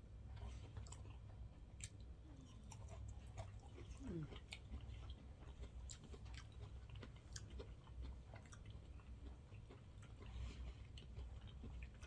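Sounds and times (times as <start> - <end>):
person chewing: 0.3 - 12.0.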